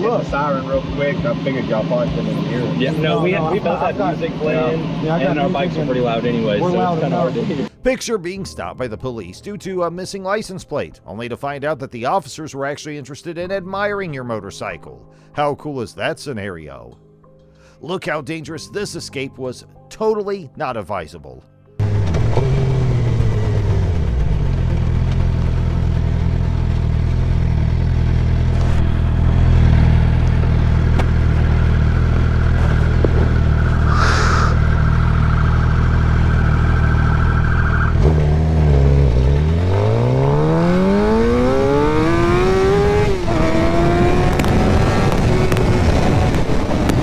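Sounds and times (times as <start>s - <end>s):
vehicle engine revving: 21.8s - 47.0s.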